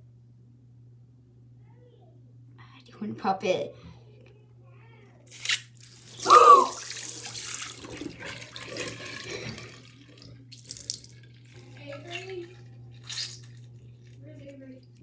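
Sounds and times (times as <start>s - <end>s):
tap water splashing in sink: 5.4s - 13.5s.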